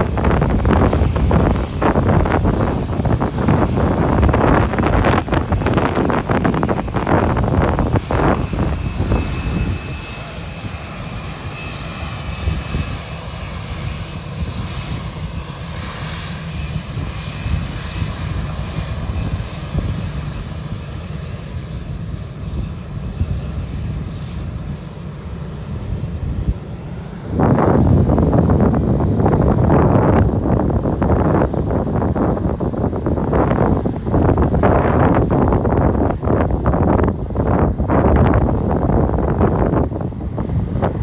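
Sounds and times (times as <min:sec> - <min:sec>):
jet engines whining: 0:00.0 - 0:41.0
wind buffeting microphone: 0:00.0 - 0:41.0.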